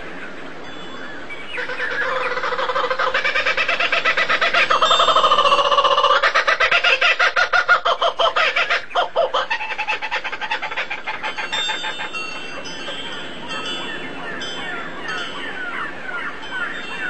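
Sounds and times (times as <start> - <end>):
bird clucking chatter: 1.6 - 13.6
thin ringing chime tones: 4.8 - 6.0, 11.4 - 17.0.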